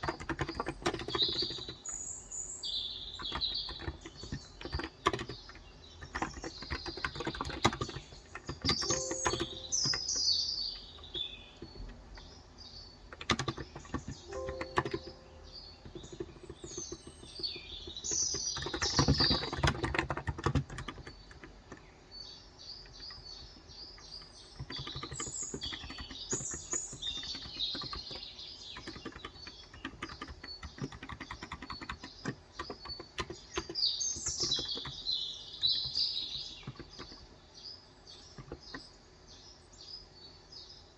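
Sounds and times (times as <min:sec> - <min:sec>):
keyboard keys clacking: 0:00.0 - 0:02.0, 0:03.0 - 0:21.9, 0:24.5 - 0:37.3, 0:38.2 - 0:38.9
small birds chirping: 0:00.0 - 0:40.9.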